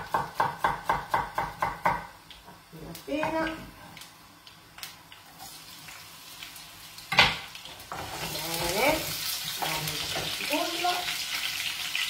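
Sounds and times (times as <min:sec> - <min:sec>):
onion and garlic frying in oil: 0:00.0 - 0:12.0.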